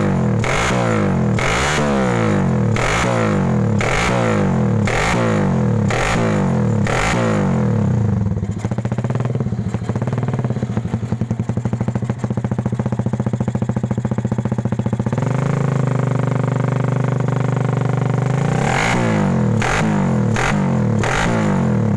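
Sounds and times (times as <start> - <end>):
motorcycle engine revving and idling: 0.0 - 21.9.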